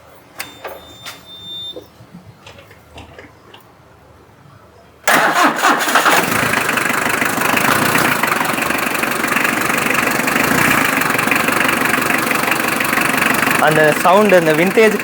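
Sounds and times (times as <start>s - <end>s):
diesel engine starting and idling: 5.0s - 15.0s.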